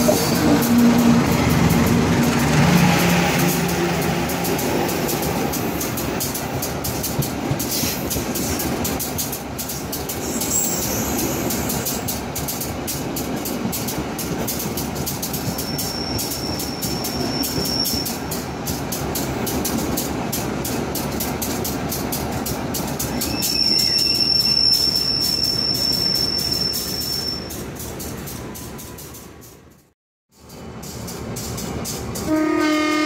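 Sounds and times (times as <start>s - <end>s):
wheels clicking on track: 0.0s - 26.6s
train rumbling on rails: 0.0s - 33.0s
high wheel squeal: 10.2s - 12.1s, 15.6s - 18.3s, 23.1s - 27.6s.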